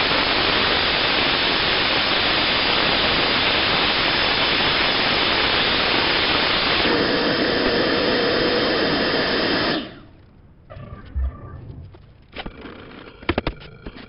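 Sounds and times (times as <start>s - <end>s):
humming tone: 10.2s - 12.4s.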